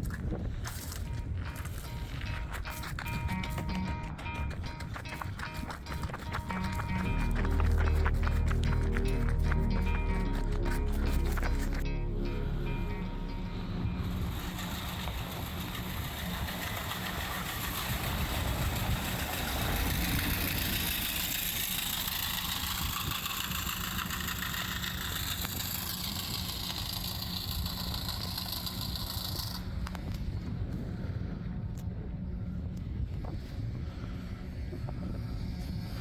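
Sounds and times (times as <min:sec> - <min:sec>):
truck engine humming: 0:00.8 - 0:30.1.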